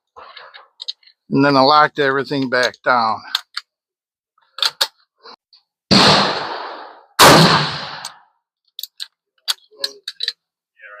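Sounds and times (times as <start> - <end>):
rifle shots ringing: 5.9 - 8.2.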